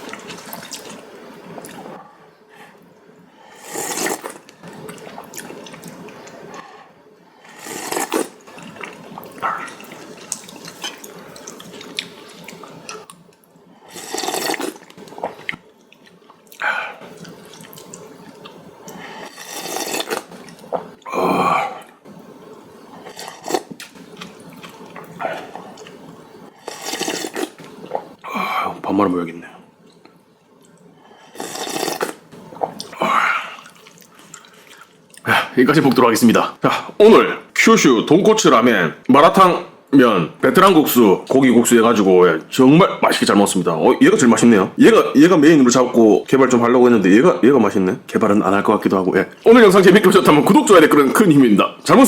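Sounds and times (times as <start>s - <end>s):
quiet eating noises: 0.0s - 37.0s
noodles slurped loudly: 26.6s - 28.0s.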